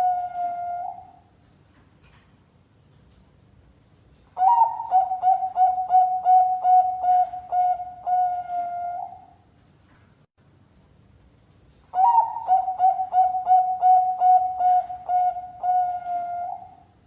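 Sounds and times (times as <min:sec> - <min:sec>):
dove cooing song: 0:00.0 - 0:01.3, 0:04.4 - 0:09.4, 0:11.9 - 0:17.0.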